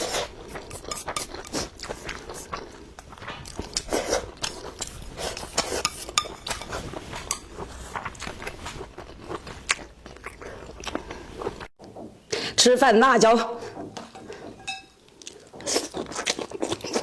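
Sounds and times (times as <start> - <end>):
utensils scraping bowls and plates: 4.8 - 7.8, 13.6 - 15.8.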